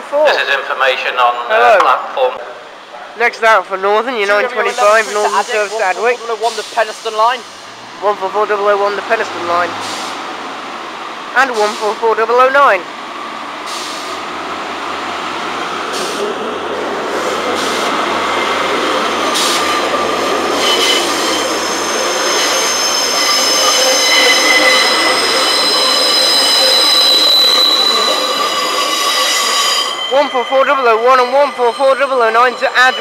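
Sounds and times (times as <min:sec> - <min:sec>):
diesel train rumble: 0:04.3 - 0:33.0
high-pitched wheel squeal: 0:17.6 - 0:33.0.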